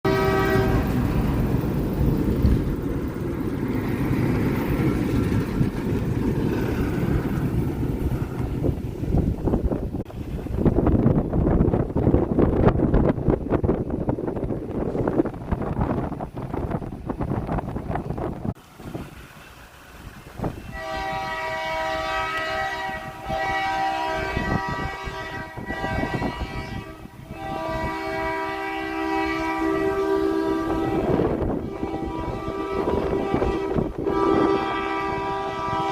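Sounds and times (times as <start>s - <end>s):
train rumbling by: 0.0s - 35.9s
horn-like tone: 0.1s - 1.0s, 20.7s - 35.9s.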